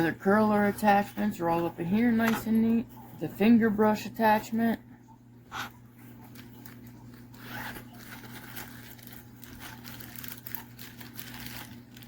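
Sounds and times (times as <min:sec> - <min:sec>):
low steady hum: 0:00.0 - 0:12.0
rustling in fabric bag: 0:06.2 - 0:12.0.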